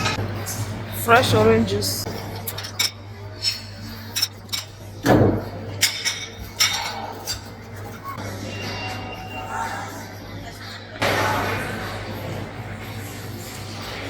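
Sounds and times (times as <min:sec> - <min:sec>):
glasses and dishes clinking: 0:02.1 - 0:09.4.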